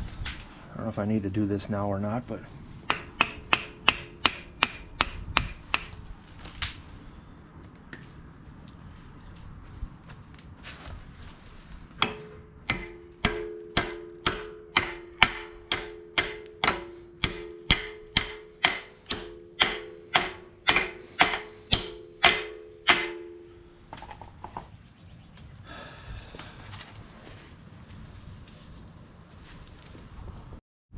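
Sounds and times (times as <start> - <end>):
hammer striking steel pin: 2.9 - 6.0, 12.0 - 24.2.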